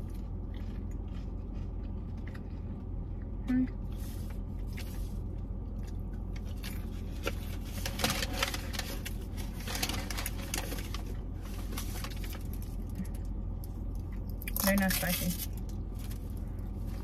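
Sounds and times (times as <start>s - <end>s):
crunchy chewing: 0.0s - 3.4s.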